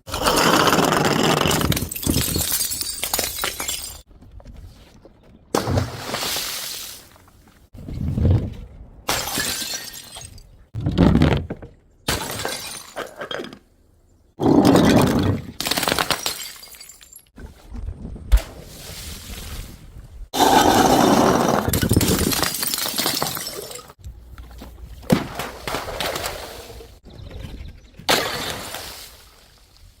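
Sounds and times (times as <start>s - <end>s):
glass bottles smashing: 1.5s - 4.1s, 9.1s - 10.6s, 12.1s - 13.3s, 15.6s - 17.3s, 21.7s - 24.0s
glass shards tinkling: 1.7s - 4.0s.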